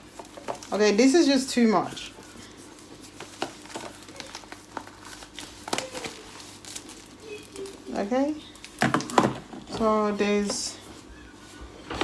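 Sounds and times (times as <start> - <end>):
packaging rustling: 0.0 - 0.9, 1.8 - 12.0
plastic bottles clicking and knocking: 8.8 - 10.6.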